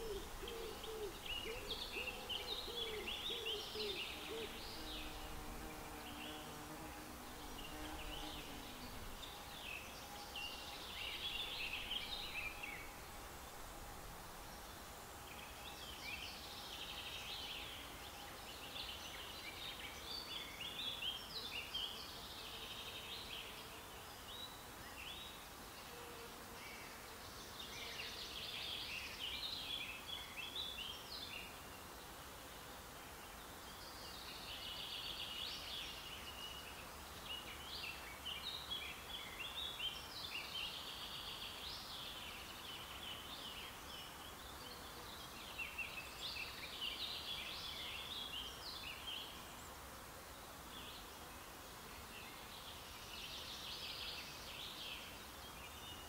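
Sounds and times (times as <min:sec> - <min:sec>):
songbird chattering song: 0:00.0 - 0:06.5, 0:07.3 - 0:13.6
steady background hiss: 0:00.0 - 0:56.0.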